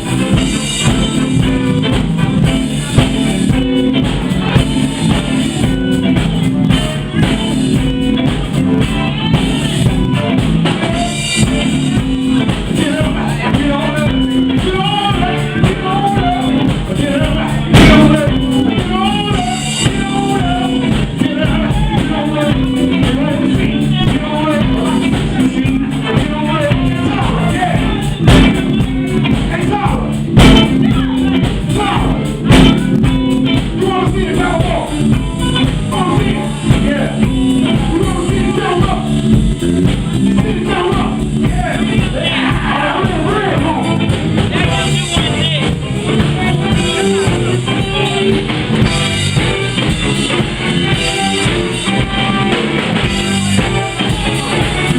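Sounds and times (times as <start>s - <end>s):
live blues band: 0.0s - 54.9s
person singing: 0.0s - 54.9s
sharp loud hits: 17.7s - 18.3s.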